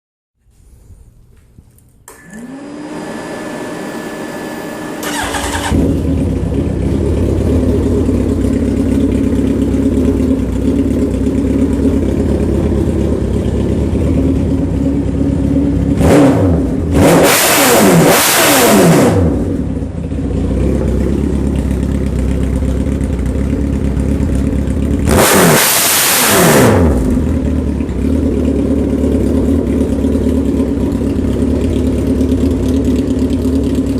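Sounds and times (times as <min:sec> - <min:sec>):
motorcycle engine idling and revving: 0:04.1 - 0:33.9
motorcycle starter cranking: 0:05.0 - 0:06.1.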